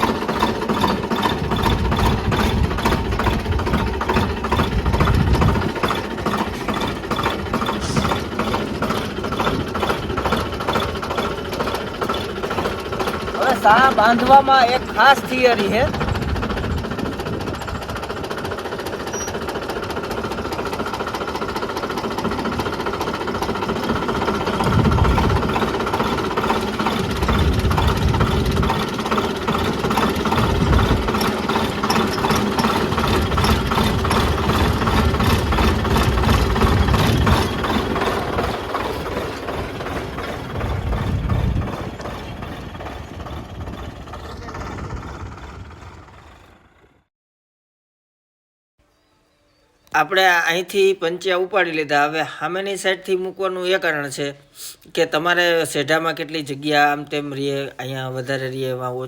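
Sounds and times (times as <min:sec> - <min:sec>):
low rumbles: 0:00.0 - 0:19.2, 0:23.4 - 0:47.0
tractor diesel engine running: 0:00.0 - 0:47.1.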